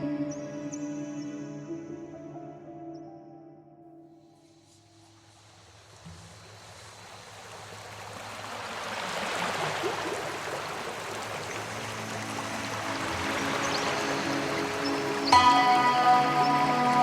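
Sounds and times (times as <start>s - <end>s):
waterfall rushing: 5.0s - 17.0s.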